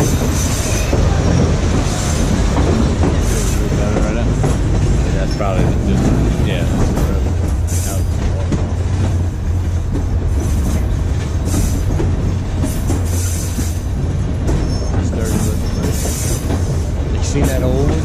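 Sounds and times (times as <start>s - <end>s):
wheel squeal: 0.0s - 2.4s, 12.6s - 13.8s, 14.5s - 16.8s
train rumbling on track: 0.0s - 18.0s.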